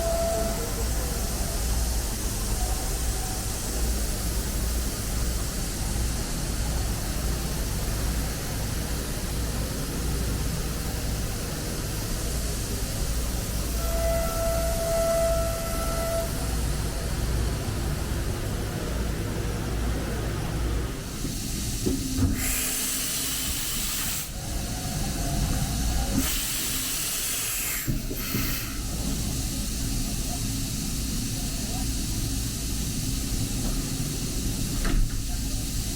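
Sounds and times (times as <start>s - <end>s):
loud hissing blasts: 21.0s - 35.9s.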